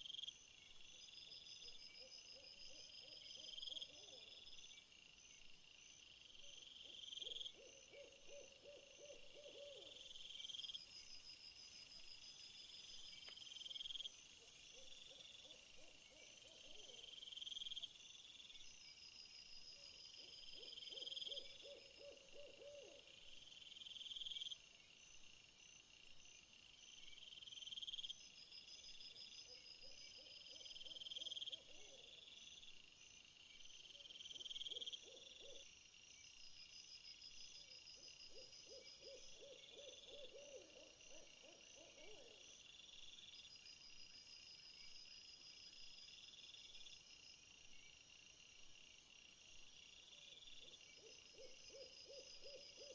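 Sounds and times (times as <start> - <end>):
night insects chirping: 0.0 - 52.9.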